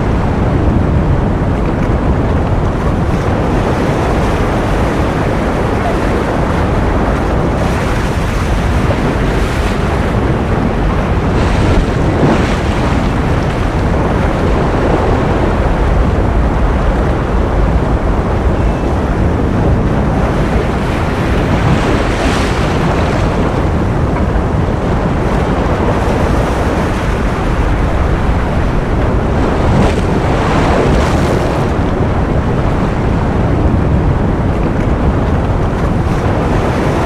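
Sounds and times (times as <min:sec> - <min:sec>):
ocean surf rushing: 0:00.0 - 0:37.0.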